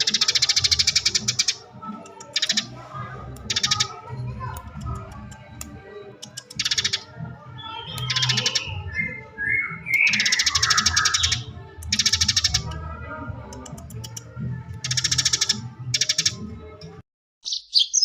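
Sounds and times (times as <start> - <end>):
sparrow chattering trills: 0.0 - 2.8, 3.4 - 4.0, 6.2 - 12.7, 14.8 - 16.4
gliding chirps: 6.2 - 12.7.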